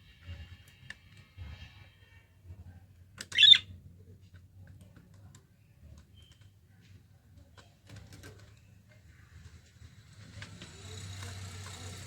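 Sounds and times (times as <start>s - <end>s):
budgerigars chirping: 3.4s - 3.6s.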